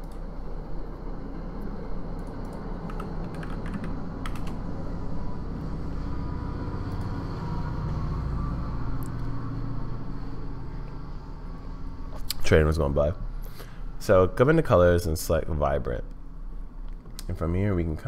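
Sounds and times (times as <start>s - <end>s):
keyboard typing clicks: 2.2s - 4.6s.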